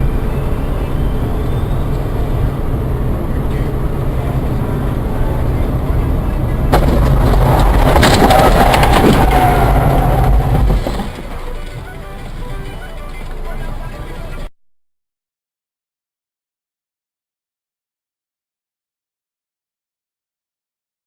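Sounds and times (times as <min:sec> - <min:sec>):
loud noise with held tone: 0:00.0 - 0:14.5
vehicle driving rumble: 0:00.0 - 0:14.5
sudden sharp crack: 0:06.7 - 0:11.3.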